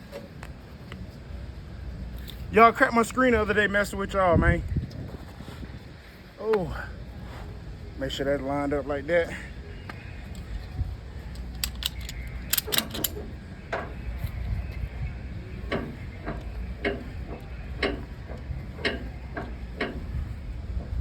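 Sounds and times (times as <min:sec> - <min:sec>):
steady low rumble: 0:00.0 - 0:21.0
ratchet strap clicking: 0:11.3 - 0:13.2.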